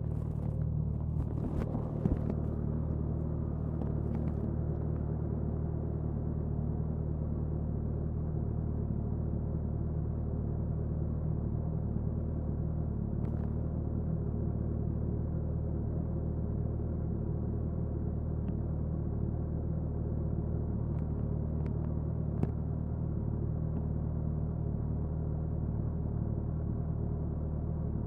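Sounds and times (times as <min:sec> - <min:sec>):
motorcycle engine running steadily: 0:00.0 - 0:28.0.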